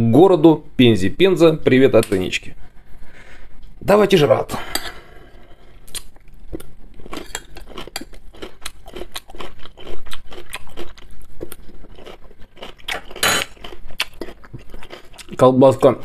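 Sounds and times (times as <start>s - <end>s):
person chewing crunchy salad: 5.9s - 15.4s.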